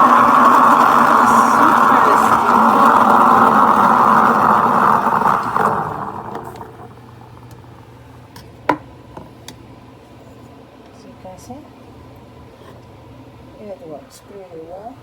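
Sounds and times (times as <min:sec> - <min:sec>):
steam wand hissing: 0:00.0 - 0:06.9.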